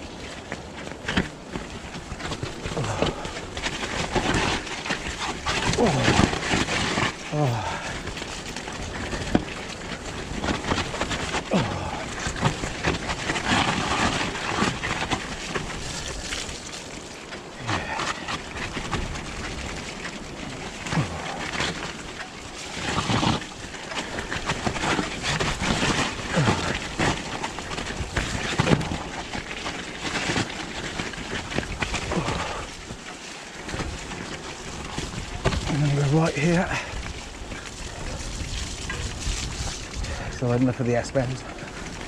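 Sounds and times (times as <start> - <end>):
bike tyre and frame rattle: 0.0 - 42.0
wind gusting on microphone: 33.7 - 42.0.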